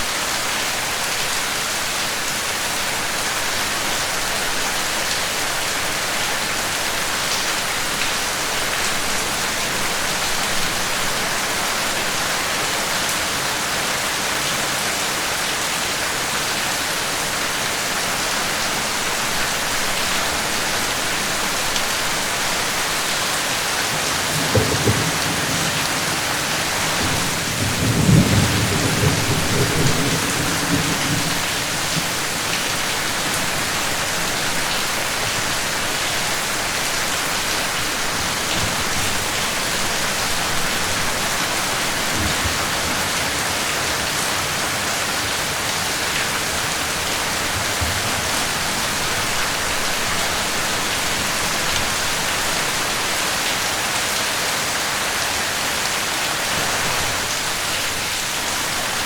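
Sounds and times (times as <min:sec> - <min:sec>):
steady rain falling: 0:00.0 - 0:59.0
low rumble of thunder: 0:24.2 - 0:32.3.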